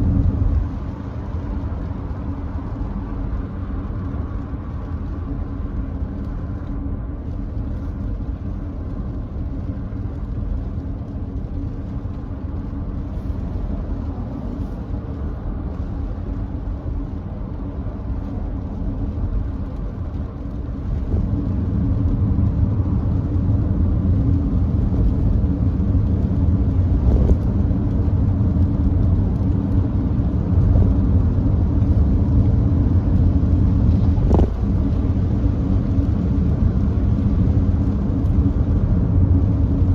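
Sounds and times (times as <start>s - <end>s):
tyre and wind road noise: 0.0s - 39.9s.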